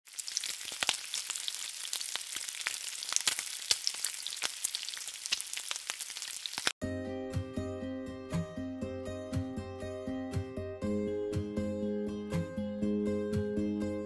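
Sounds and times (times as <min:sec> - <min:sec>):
oil popping and crackling: 0:00.0 - 0:06.8
food sizzling in hot oil: 0:00.1 - 0:06.8.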